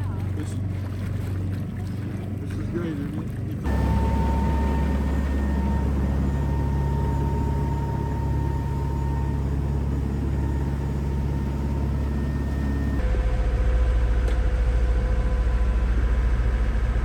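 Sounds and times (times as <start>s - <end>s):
boat engine humming: 0.0s - 17.0s
faint steady whine: 3.7s - 17.0s.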